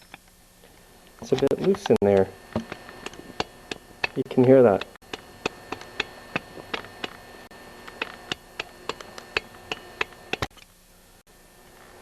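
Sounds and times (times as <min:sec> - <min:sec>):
piston clicking metallic ticks: 0:01.2 - 0:07.2, 0:07.8 - 0:10.6.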